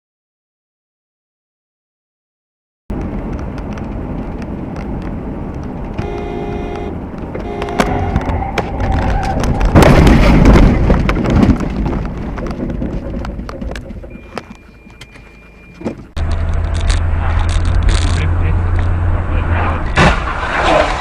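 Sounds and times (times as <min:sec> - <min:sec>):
road noise: 0:02.9 - 0:21.0
vehicle engine hum: 0:02.9 - 0:21.0
metal crunching and scraping: 0:07.1 - 0:21.0
car collision impact: 0:19.8 - 0:21.0.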